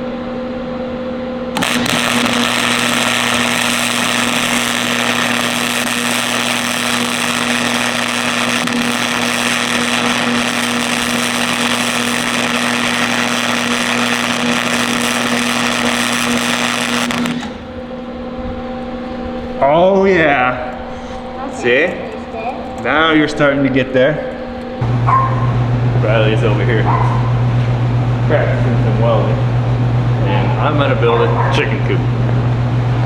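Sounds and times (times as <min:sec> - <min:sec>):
steady electrical hum: 0:00.0 - 0:33.0
welding arc crackling and hissing: 0:01.5 - 0:18.0, 0:20.4 - 0:25.0.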